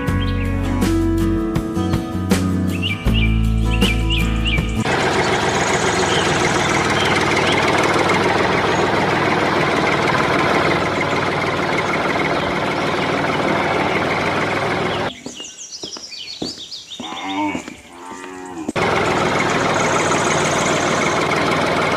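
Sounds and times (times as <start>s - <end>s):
engine running steadily: 4.0s - 15.1s, 18.8s - 21.9s.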